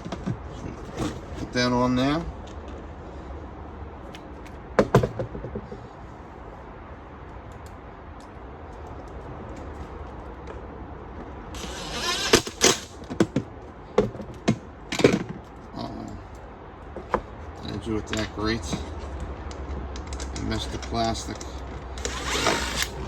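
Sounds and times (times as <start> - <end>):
scraping rustle: 0.0 - 1.8.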